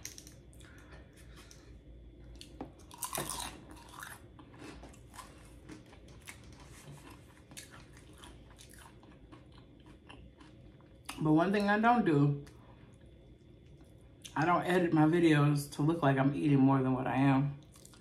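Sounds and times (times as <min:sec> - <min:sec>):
person chewing food: 0:00.0 - 0:11.2, 0:17.6 - 0:18.0.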